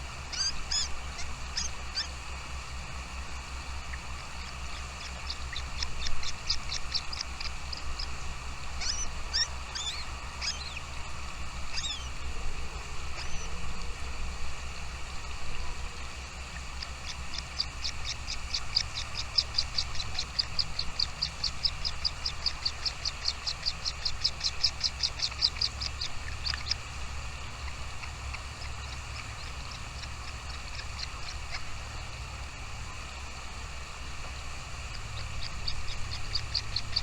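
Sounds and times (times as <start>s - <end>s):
small bird chirping: 0.3s - 2.2s, 3.8s - 11.0s, 11.6s - 12.2s, 13.1s - 13.6s, 16.6s - 26.9s, 27.5s - 31.8s, 34.9s - 37.0s.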